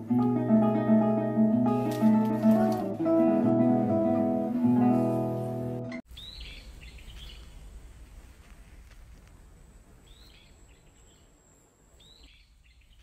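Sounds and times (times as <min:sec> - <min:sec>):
faint bird chirping: 0:06.1 - 0:07.8, 0:10.0 - 0:13.0.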